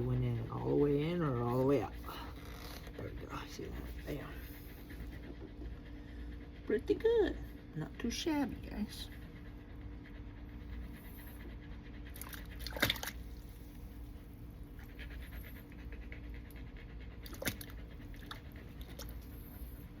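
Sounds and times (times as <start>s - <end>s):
rhythmic panting breaths: 0.0s - 20.0s
steady low hum: 0.0s - 20.0s.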